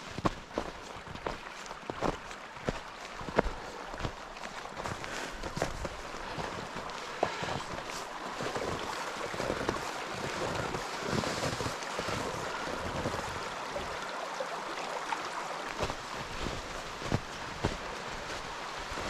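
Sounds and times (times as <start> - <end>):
footsteps crunching in snow: 0.0 - 14.0, 15.7 - 19.0
mountain stream rushing: 0.0 - 19.0.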